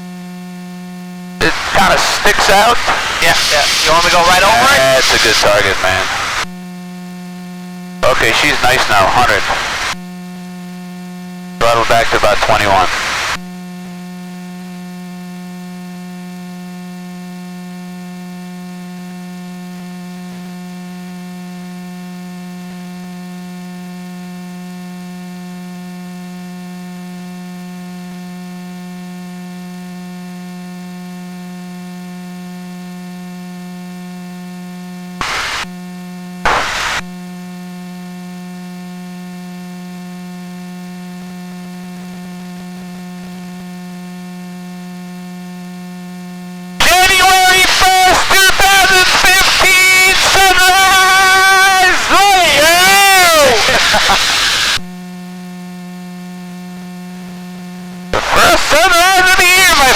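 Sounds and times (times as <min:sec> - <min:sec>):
steady electrical hum: 0:00.3 - 0:15.1, 0:35.2 - 0:59.9
short bursts of noise: 0:01.4 - 0:06.5, 0:08.0 - 0:10.0, 0:11.6 - 0:13.4, 0:35.2 - 0:35.7, 0:36.5 - 0:37.2, 0:46.8 - 0:54.9, 0:58.2 - 0:59.9.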